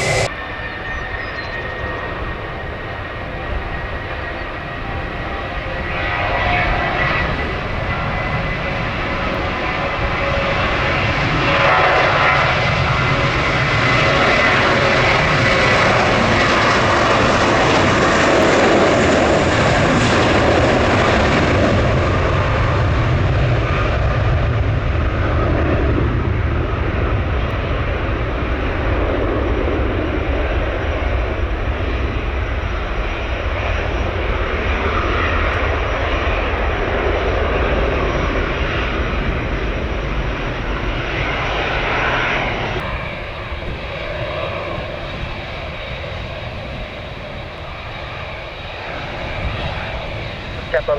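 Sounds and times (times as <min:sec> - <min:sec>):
jet airliner engines passing: 0:00.0 - 0:50.9.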